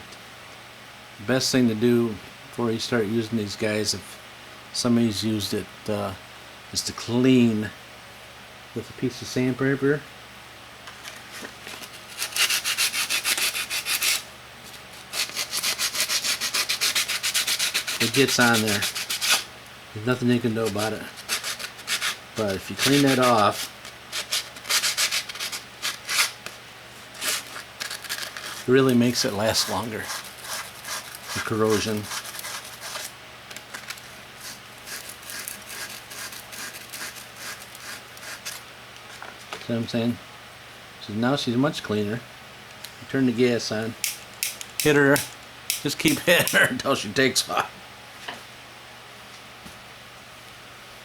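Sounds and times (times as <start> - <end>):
steady low hum: 0.0 - 51.0
sandpaper rubbing on metal tip: 12.1 - 14.2, 15.0 - 19.5, 20.5 - 26.4, 27.2 - 33.1, 34.4 - 38.6.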